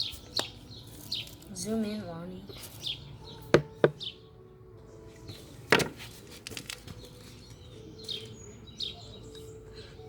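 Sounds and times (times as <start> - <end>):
small bird chirping: 0.0 - 4.3, 7.0 - 10.0
sharp knocks: 3.6 - 4.0.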